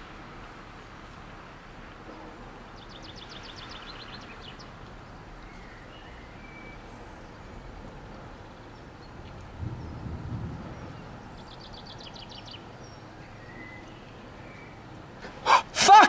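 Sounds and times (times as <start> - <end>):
steady outdoor background noise: 0.0 - 16.0
bird chirping: 8.4 - 15.6.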